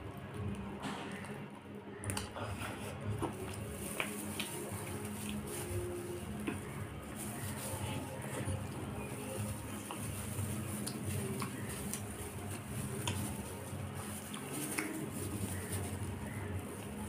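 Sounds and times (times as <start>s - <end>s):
chewing with wet clicks: 0.2s - 4.6s, 9.8s - 15.6s.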